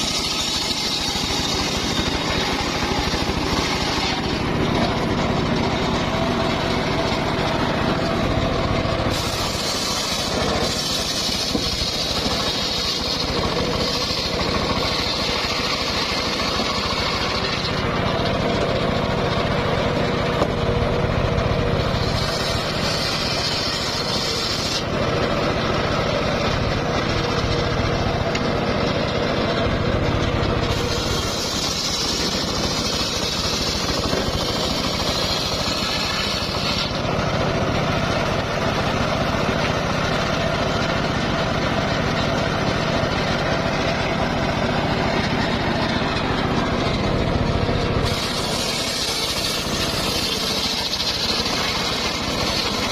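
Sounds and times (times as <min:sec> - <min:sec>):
saw blade hissing through wood: 0:00.0 - 0:18.3, 0:21.8 - 0:26.5, 0:30.5 - 0:41.0, 0:47.8 - 0:52.9
circular sawmill running: 0:00.0 - 0:52.9.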